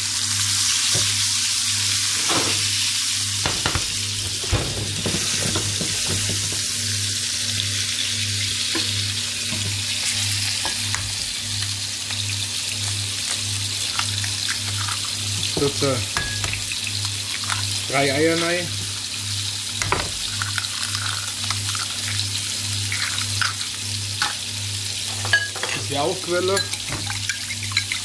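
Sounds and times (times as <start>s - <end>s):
food sizzling in a pan: 0.0s - 28.0s
sharp knocks: 3.4s - 6.6s.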